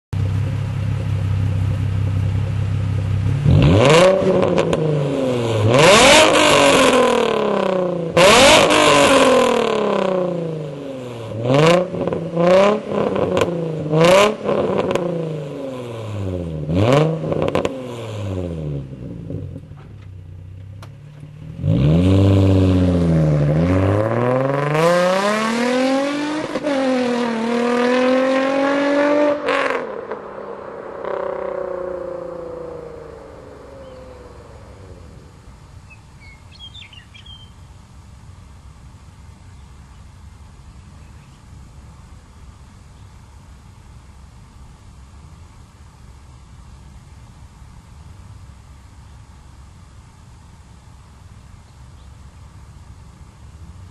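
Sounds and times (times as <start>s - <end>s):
car engine revving: 0.2s - 37.3s.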